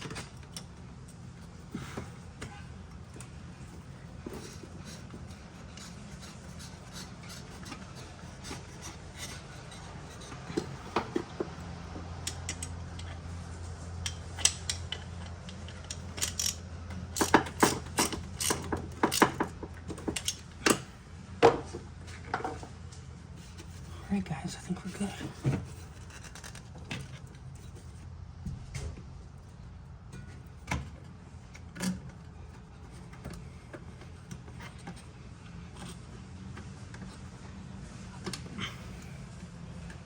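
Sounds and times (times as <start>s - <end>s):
hand tools clicking and knocking: 14.0s - 22.5s.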